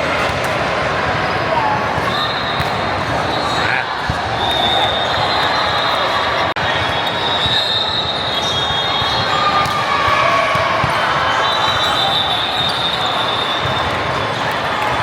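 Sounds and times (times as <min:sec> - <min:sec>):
volleyballs hit and bouncing: 0:00.0 - 0:00.8, 0:01.8 - 0:04.9, 0:08.6 - 0:11.2.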